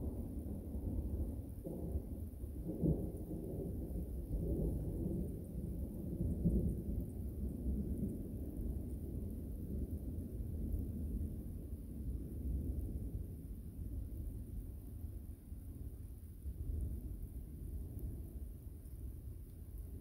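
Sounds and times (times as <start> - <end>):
thunder rumbling: 0.0 - 14.9.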